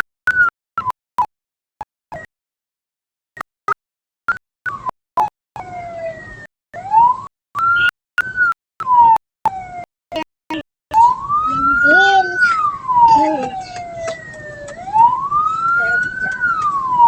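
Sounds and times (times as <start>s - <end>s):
siren wailing: 5.6s - 10.2s, 10.9s - 17.0s.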